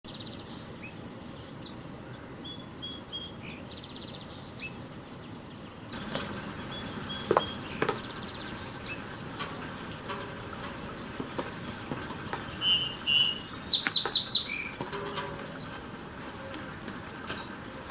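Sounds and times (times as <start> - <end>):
small birds chirping: 0.1 - 17.9
rain falling: 5.9 - 17.9
sharp taps: 7.2 - 8.2
buzzy bird trills: 12.4 - 17.9.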